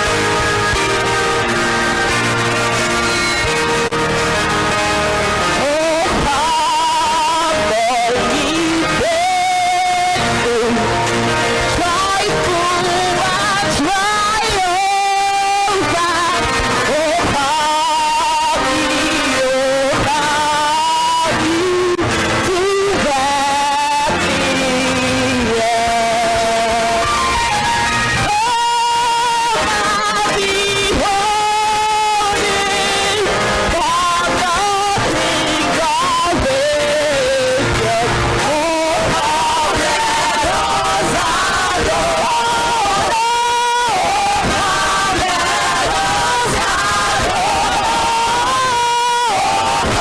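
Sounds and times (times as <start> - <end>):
church choir singing: 0.0 - 50.0
live band with guitar: 0.0 - 50.0
musical accompaniment: 0.0 - 50.0
choir singing a worship song: 28.2 - 50.0.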